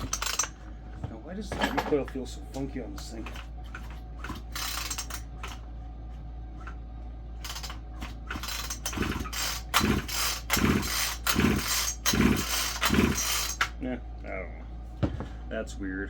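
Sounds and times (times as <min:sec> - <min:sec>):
chainsaw recoil starter pulls: 0:00.0 - 0:00.6, 0:03.0 - 0:05.6, 0:07.4 - 0:13.7.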